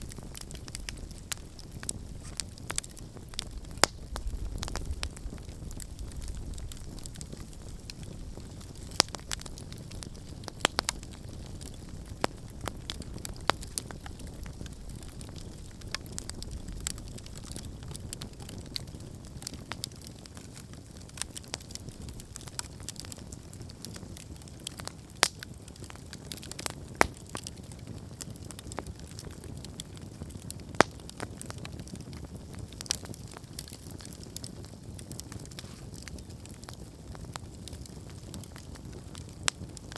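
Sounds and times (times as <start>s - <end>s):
campfire flames rumbling: 0.0s - 39.9s
fire crackling and popping: 0.0s - 39.9s.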